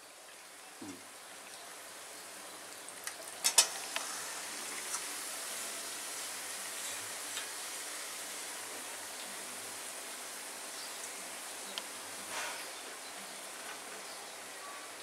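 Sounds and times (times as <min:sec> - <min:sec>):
onions sizzling in hot oil: 0:01.3 - 0:15.0.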